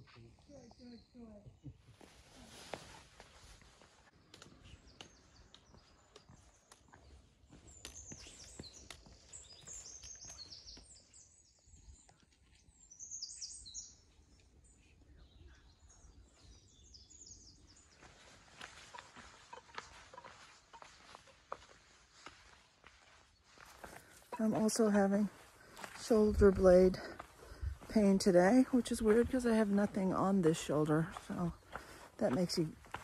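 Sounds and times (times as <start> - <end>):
small birds chirping: 0.0 - 2.5, 3.2 - 33.0
light footsteps on rock: 4.2 - 11.0, 18.0 - 28.0, 31.0 - 33.0.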